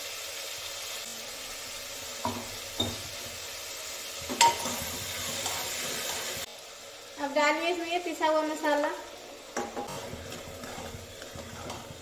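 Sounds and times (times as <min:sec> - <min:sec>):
food sizzling in hot oil: 0:00.0 - 0:12.0
spoon knocking against metal pot: 0:02.2 - 0:03.2
spoon stirring in a pot: 0:04.3 - 0:06.3, 0:09.5 - 0:12.0.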